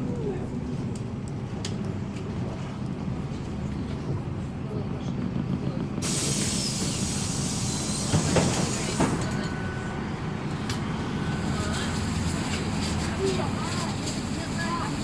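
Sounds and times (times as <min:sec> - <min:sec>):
bus engine running: 0:00.0 - 0:15.0
loud compressed air hiss: 0:06.0 - 0:09.2.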